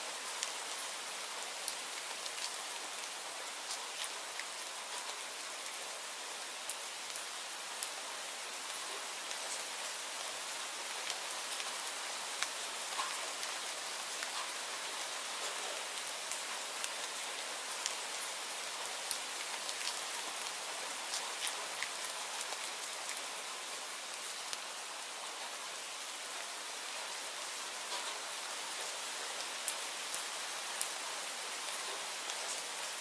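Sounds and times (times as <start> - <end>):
steady rainfall hiss: 0.0 - 33.0
sharp rain ticks: 0.2 - 1.0, 1.6 - 5.7, 6.6 - 8.0, 8.7 - 23.3, 26.3 - 33.0.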